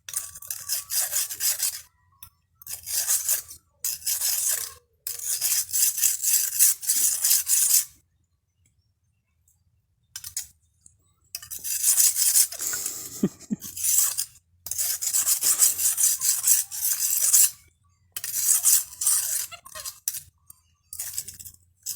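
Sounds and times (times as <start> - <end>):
knife scraping on sharpener: 0.0 - 1.9, 2.6 - 8.0, 10.2 - 10.5, 11.4 - 17.6, 18.2 - 21.9.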